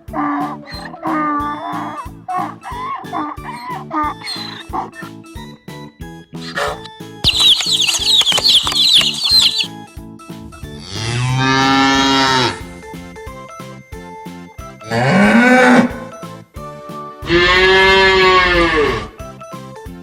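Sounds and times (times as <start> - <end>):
light background music: 0.0 - 20.0
cow mooing: 10.8 - 12.7, 14.8 - 16.1, 17.2 - 19.2.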